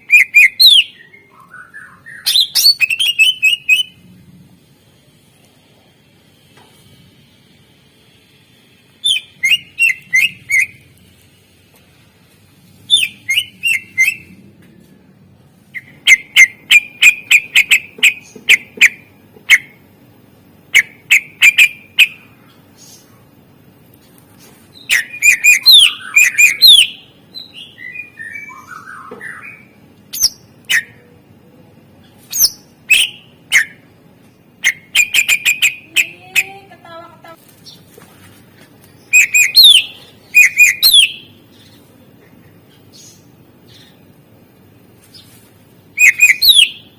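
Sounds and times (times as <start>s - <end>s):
bird rapid sharp chirping: 15.8s - 19.8s, 20.7s - 22.2s, 24.8s - 27.0s, 34.6s - 36.5s, 39.0s - 41.3s, 46.0s - 46.9s.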